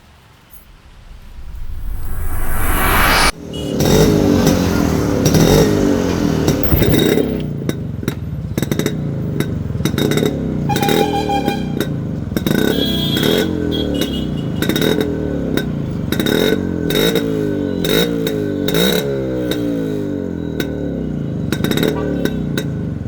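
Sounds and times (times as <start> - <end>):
motorcycle engine revving: 0.7 - 23.0.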